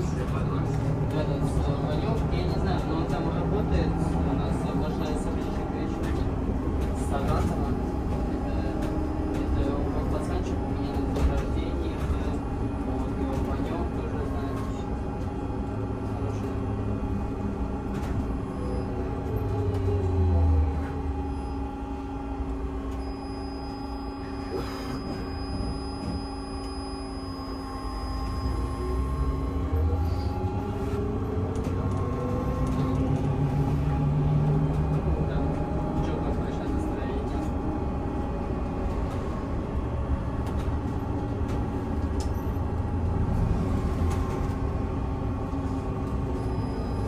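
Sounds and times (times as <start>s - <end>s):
trolleybus electric drive whining: 0.0s - 47.0s.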